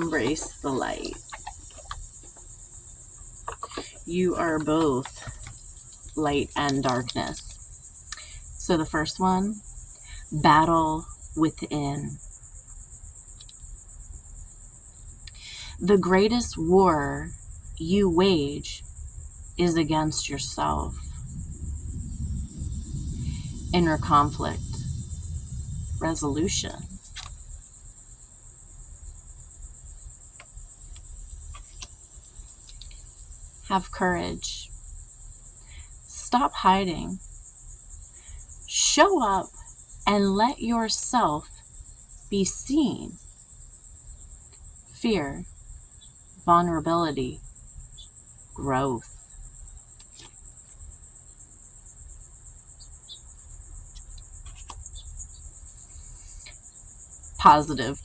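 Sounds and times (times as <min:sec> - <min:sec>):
crickets chirping: 0:00.0 - 0:58.0
faint ticks: 0:13.3 - 0:13.6, 0:30.3 - 0:33.1, 0:53.9 - 0:56.8
low steady rumble: 0:15.3 - 0:27.5
faint clicks: 0:32.6 - 0:33.0.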